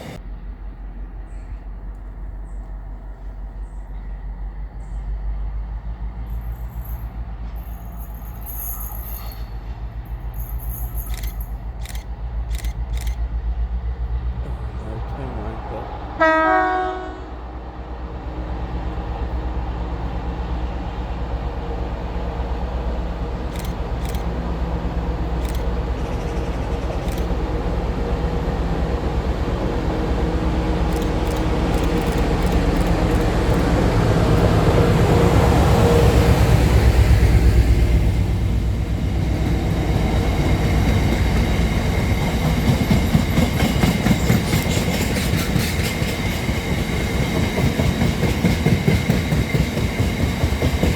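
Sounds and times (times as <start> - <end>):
train rumbling past: 0.0 - 50.9
wheel clicks over rail joints: 30.8 - 34.5.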